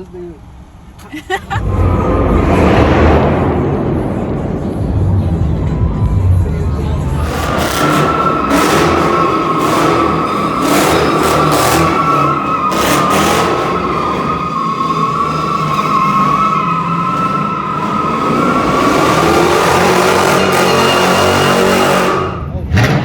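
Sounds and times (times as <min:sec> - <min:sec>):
car engine rumbling: 0:00.0 - 0:23.0
car tires squealing: 0:07.1 - 0:23.0.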